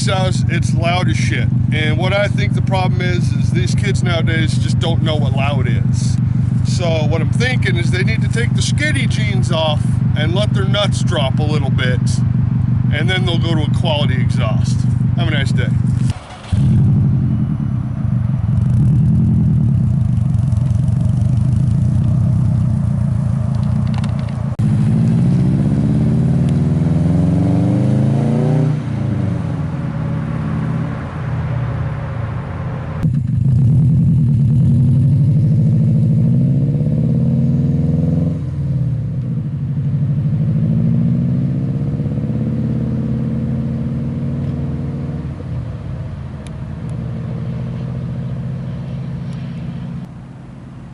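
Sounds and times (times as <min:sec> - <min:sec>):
car engine rumbling and revving: 0:00.0 - 0:50.9.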